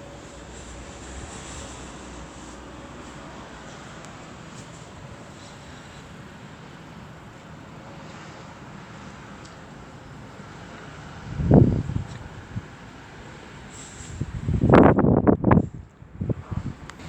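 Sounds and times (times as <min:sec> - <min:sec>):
storm wind rushing: 0:11.2 - 0:12.7, 0:14.1 - 0:17.0
wind gust buffeting microphone: 0:11.2 - 0:12.8, 0:14.1 - 0:17.0.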